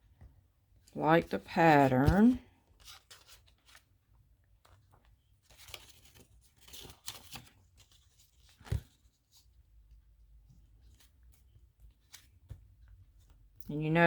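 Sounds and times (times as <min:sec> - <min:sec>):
paper rustling and tearing: 0:01.4 - 0:03.9, 0:05.4 - 0:09.4.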